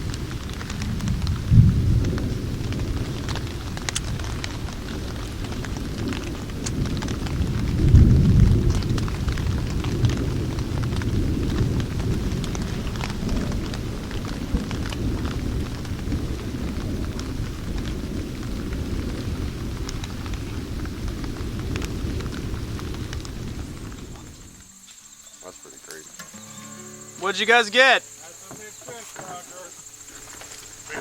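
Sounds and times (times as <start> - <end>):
thunder rumbling: 0.0 - 24.8
raindrop ticks: 0.0 - 25.0
rain falling: 0.0 - 31.0.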